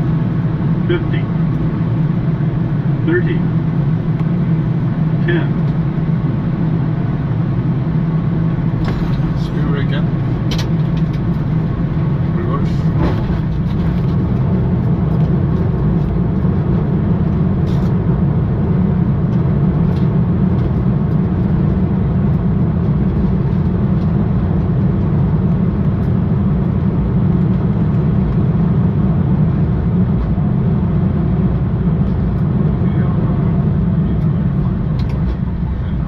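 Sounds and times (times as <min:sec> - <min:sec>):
jet engines in reverse thrust: 0:00.0 - 0:36.0.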